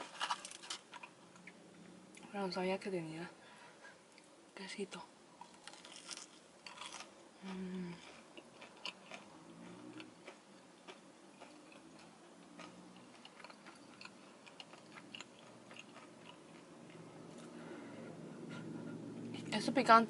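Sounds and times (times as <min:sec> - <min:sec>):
person chewing with mouth closed: 0:05.6 - 0:17.7.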